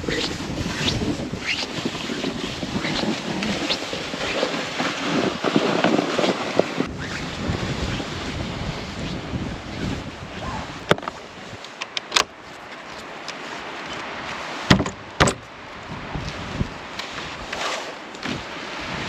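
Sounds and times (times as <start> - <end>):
rustling: 0.0 - 9.2
wind buffeting microphone: 0.0 - 11.7, 13.8 - 17.6, 18.2 - 19.0.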